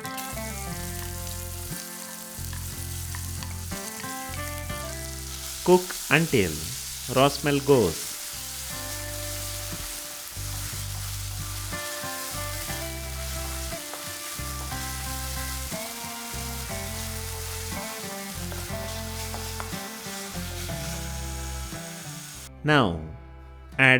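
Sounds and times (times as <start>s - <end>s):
paste sizzling in hot oil: 0.0s - 22.5s.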